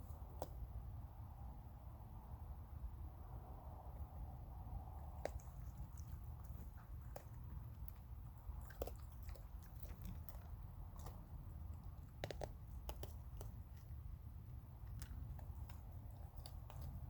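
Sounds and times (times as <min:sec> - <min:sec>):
low steady rumble: 0:00.0 - 0:17.0
raccoon crunching dry food: 0:05.0 - 0:17.0.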